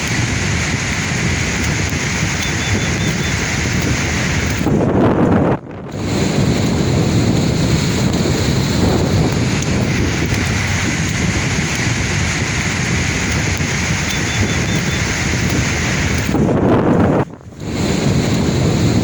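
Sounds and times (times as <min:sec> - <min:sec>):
sea waves washing: 0:00.0 - 0:19.0
wind buffeting microphone: 0:00.0 - 0:19.0.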